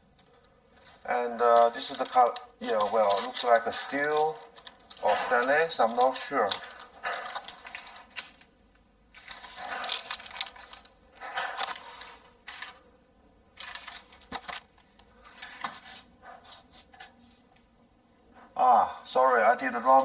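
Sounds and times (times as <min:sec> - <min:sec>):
paper tearing and crinkling: 0:00.8 - 0:12.8, 0:13.6 - 0:17.1.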